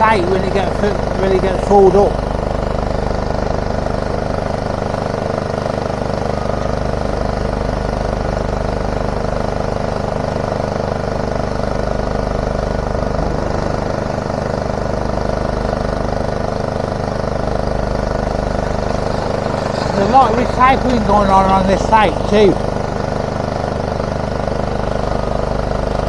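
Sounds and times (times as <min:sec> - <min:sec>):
diesel machinery engine drone: 0:00.0 - 0:26.0.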